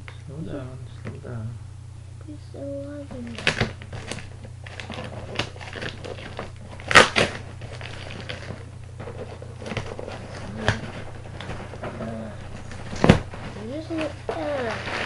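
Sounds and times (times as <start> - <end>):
packaging rustling: 3.3 - 15.0.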